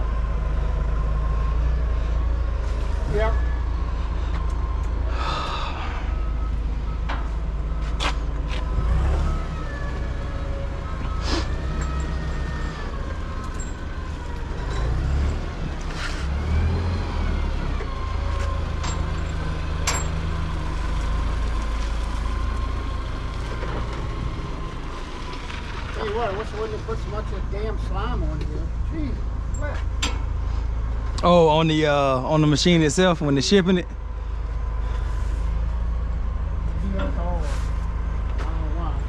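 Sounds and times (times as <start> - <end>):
diesel engine idling: 0.0 - 39.0
sharp metallic clanks: 29.5 - 30.4.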